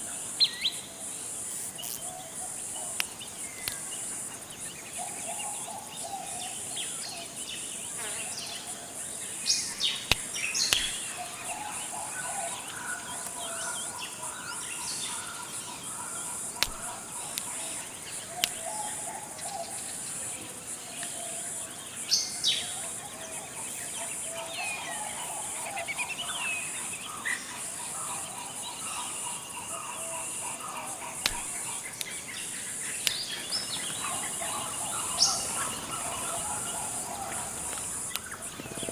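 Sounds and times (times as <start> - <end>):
high insect drone: 0.0 - 38.9
bird calls and chirps: 1.8 - 20.4, 21.0 - 38.9
sharp clicks: 2.9 - 3.9, 10.0 - 11.3, 16.6 - 17.6, 31.2 - 32.2, 33.0 - 38.9.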